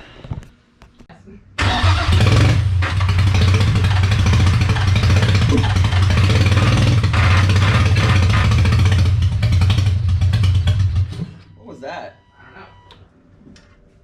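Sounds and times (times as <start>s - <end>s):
car engine running rough: 1.8s - 11.4s.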